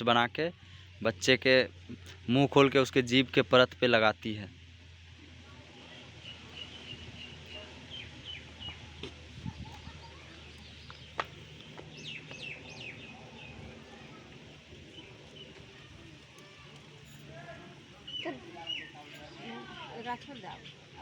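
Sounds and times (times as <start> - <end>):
birds chirping: 5.9 - 21.0.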